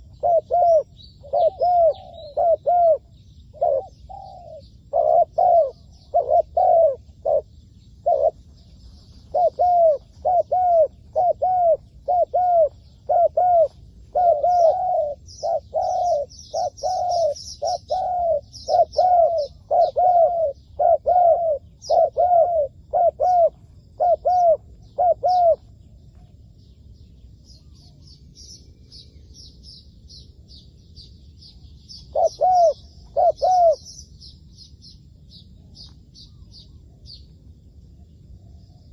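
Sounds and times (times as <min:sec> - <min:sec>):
dove cooing: 0:00.0 - 0:26.3, 0:32.0 - 0:34.0
small birds chirping: 0:00.0 - 0:38.9.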